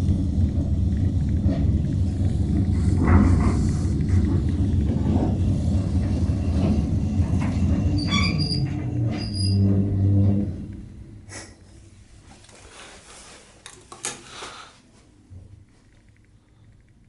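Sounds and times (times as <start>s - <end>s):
lift low rumble: 0.0s - 12.0s
steady hum: 0.0s - 12.4s
high-pitched squeaks: 7.6s - 9.8s.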